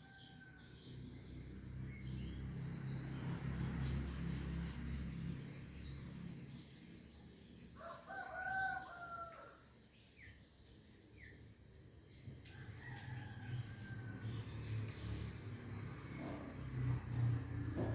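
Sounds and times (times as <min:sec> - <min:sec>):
rooster crowing: 0:07.8 - 0:09.6, 0:12.5 - 0:14.6.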